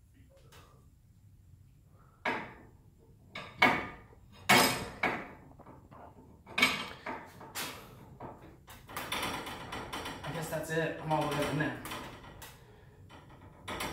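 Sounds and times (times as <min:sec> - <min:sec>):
metal tools clanking on hardware: 0:06.5 - 0:07.3, 0:08.9 - 0:12.4.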